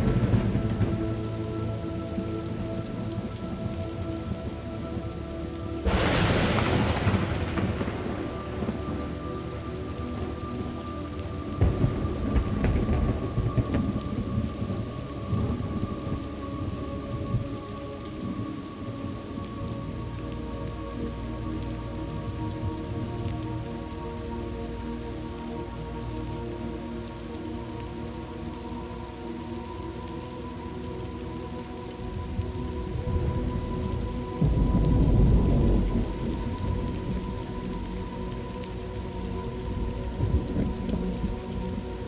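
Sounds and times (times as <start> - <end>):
thunderclap: 0.0 - 1.5, 5.8 - 10.8, 11.5 - 16.3, 32.3 - 38.2
low rolling thunder rumbles: 0.0 - 24.8, 30.9 - 42.0
steady rain: 0.0 - 42.0.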